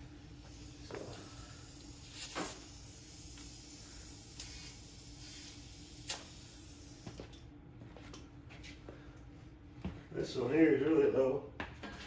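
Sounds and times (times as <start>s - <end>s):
air hissing from tire valve: 0.0s - 7.2s.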